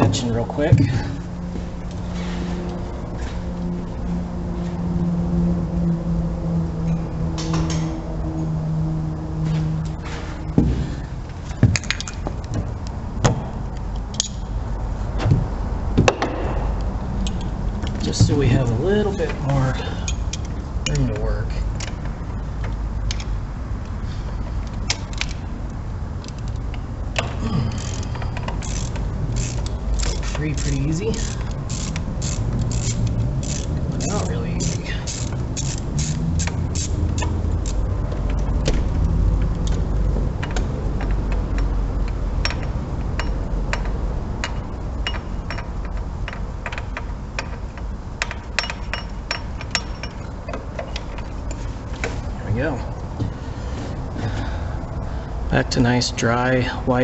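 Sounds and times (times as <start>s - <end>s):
low rumble: 0.0s - 46.2s
low background hum: 0.0s - 57.0s
hand tools clicking: 27.2s - 37.8s.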